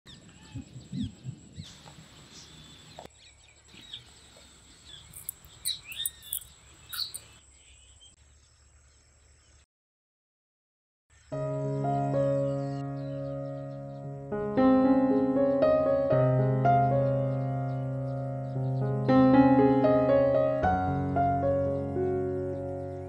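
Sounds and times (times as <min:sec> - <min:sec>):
small birds chirping: 0:00.1 - 0:09.7, 0:11.1 - 0:14.2, 0:16.9 - 0:19.3.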